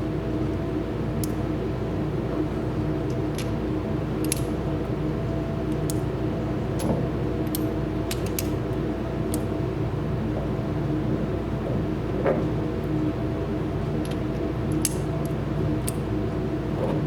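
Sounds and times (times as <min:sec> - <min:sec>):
steady low hum: 0:00.0 - 0:17.0
revolver cylinder clicking: 0:01.2 - 0:01.5, 0:04.2 - 0:04.8, 0:05.7 - 0:06.2, 0:06.8 - 0:09.6.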